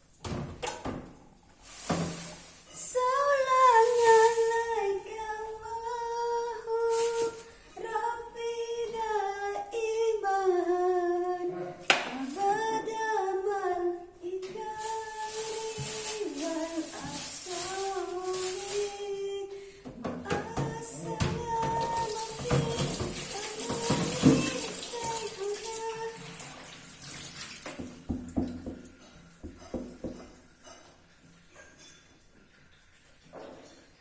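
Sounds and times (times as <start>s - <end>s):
woman singing slow melody: 2.8s - 26.3s.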